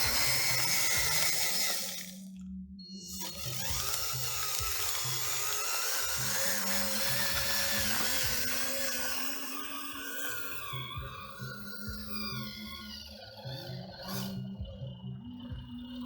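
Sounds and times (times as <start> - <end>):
background music with low beat: 0.0 - 16.0
small electric motor whining: 0.0 - 16.0.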